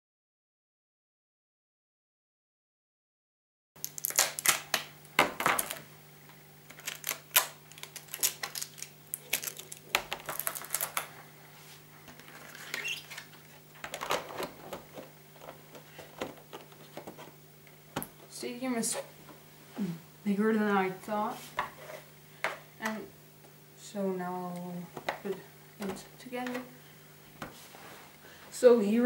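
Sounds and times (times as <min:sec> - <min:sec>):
packaging rustling: 0:03.8 - 0:05.9, 0:06.7 - 0:11.2, 0:11.8 - 0:17.4.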